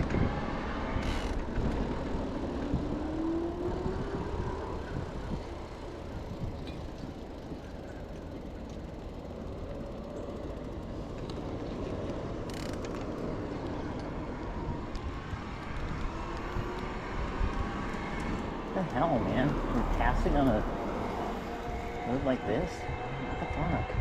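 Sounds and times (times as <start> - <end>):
wind noise on microphone: 0.0 - 7.2
bike tyre rumble on road: 0.0 - 22.6
passing vehicle engine and tyres: 0.0 - 24.0.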